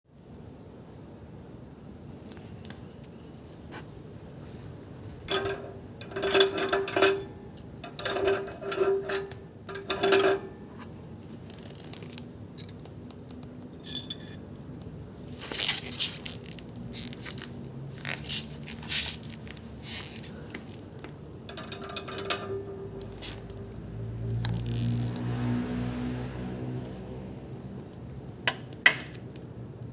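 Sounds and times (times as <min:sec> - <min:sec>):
metal clinking and scraping: 0:05.1 - 0:14.6, 0:15.4 - 0:27.7
metal ringing note: 0:05.3 - 0:11.0, 0:13.8 - 0:14.4.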